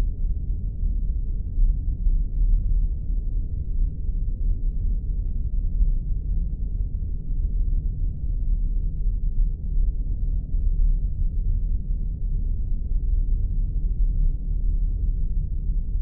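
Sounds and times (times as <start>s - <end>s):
deep rumbling drone: 0.0s - 16.0s.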